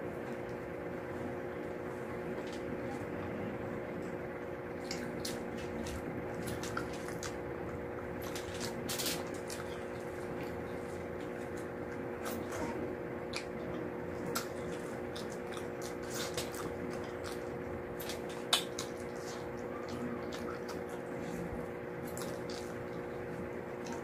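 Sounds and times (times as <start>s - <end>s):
steady hum: 0.0s - 24.0s
wet chewing and mouth smacks: 4.8s - 12.4s, 13.3s - 24.0s.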